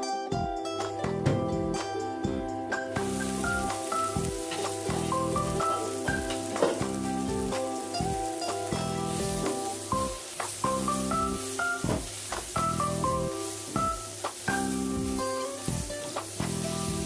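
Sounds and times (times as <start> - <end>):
vegetables sizzling in oil: 2.0 - 17.0
spatula scraping a pan: 3.0 - 17.0.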